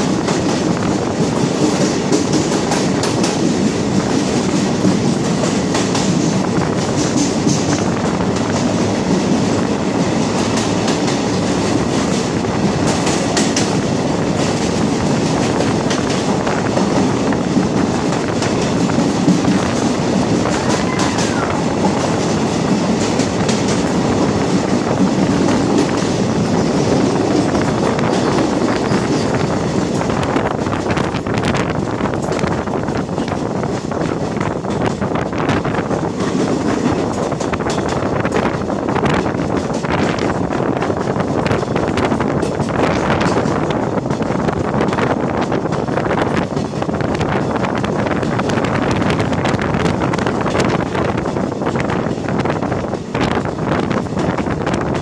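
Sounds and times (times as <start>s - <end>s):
train wheels rumbling in tunnel: 0.0s - 55.0s
wheels clicking over rail joints: 0.0s - 55.0s.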